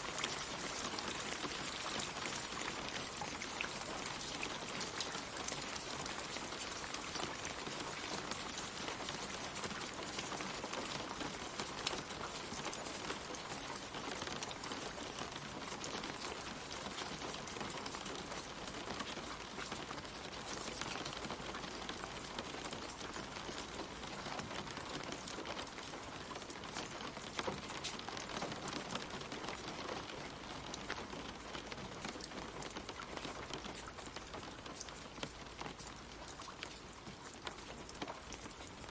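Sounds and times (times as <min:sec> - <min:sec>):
rain falling on leaves: 0:00.0 - 0:38.9.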